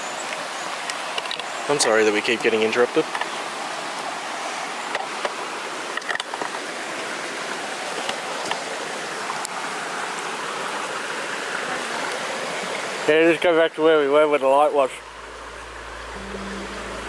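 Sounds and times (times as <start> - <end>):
waterfall rushing: 6.6 - 13.3, 14.6 - 17.0.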